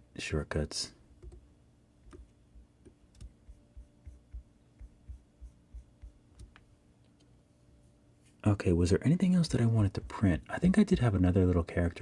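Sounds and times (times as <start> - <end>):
computer mouse and keyboard tapping: 1.2 - 1.4, 2.0 - 7.3.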